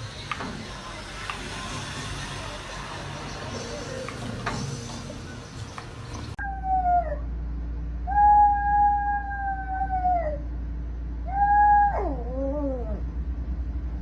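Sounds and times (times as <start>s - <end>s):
pet animal howling: 6.4s - 7.3s, 8.0s - 10.5s, 11.2s - 13.1s.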